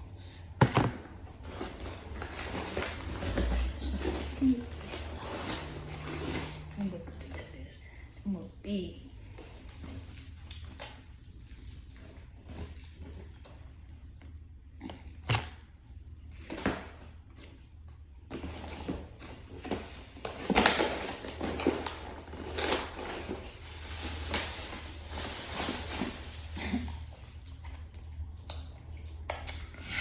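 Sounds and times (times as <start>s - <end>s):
food packaging crinkling: 1.3s - 6.8s, 18.4s - 28.2s.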